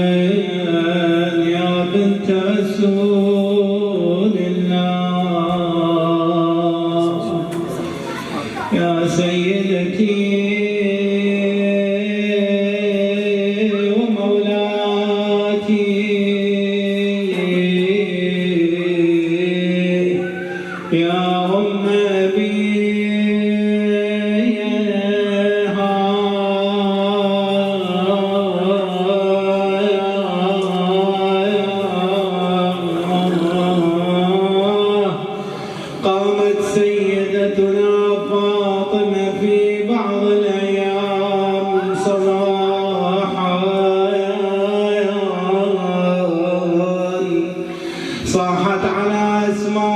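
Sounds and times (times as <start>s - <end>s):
man chanting in wavering notes: 8.7s - 35.3s, 36.0s - 49.9s.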